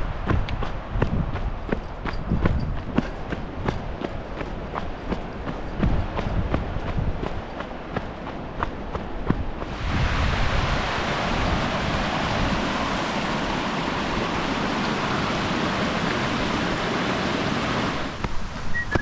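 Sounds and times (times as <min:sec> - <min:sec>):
creek water rushing: 0:03.2 - 0:19.0.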